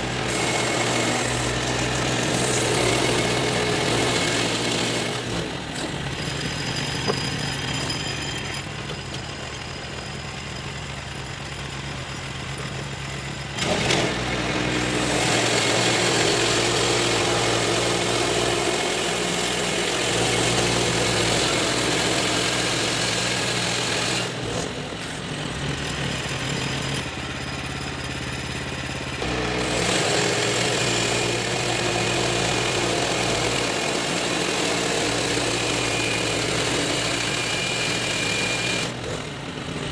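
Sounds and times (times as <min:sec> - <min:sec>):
saw blade cutting wood: 0:00.0 - 0:08.7, 0:13.6 - 0:25.3, 0:29.2 - 0:39.9
sawmill engine running: 0:00.0 - 0:39.9.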